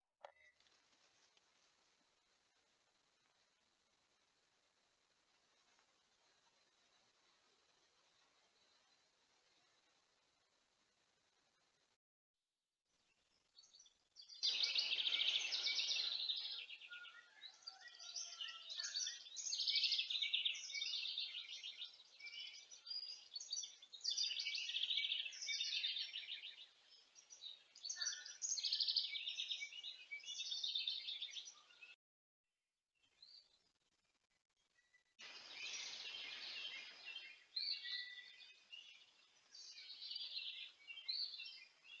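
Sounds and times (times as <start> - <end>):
songbirds chattering trills: 13.6 - 31.9, 35.2 - 42.0.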